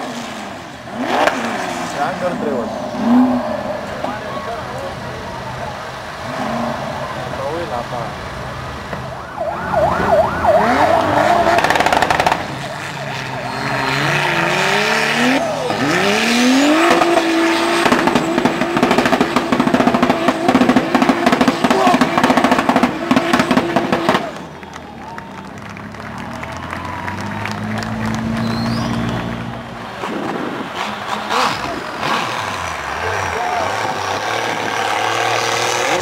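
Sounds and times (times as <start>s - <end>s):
engine revving hard: 0.0s - 4.2s, 9.6s - 24.4s, 27.1s - 36.0s.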